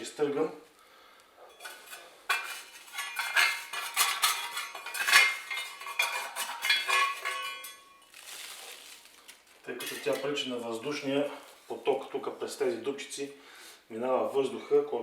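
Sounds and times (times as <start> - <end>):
metal scraping in burn pot: 1.5 - 12.0.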